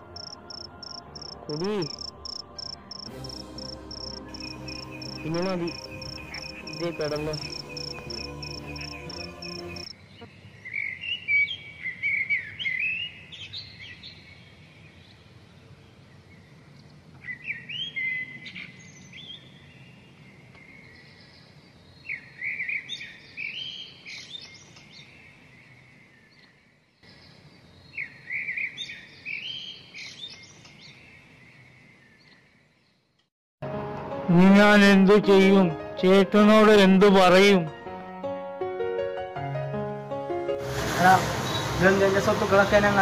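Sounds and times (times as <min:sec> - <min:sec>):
birds chirping rapidly: 0:00.0 - 0:33.2.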